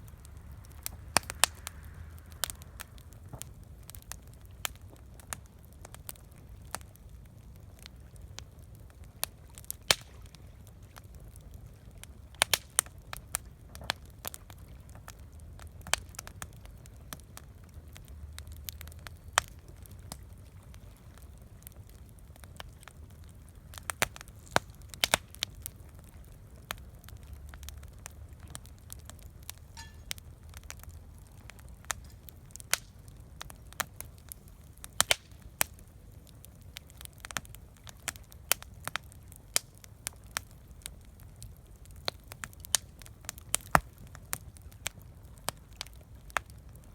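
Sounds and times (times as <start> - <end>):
low steady rumble: 0.0 - 4.6
campfire crackling and popping: 0.0 - 46.9.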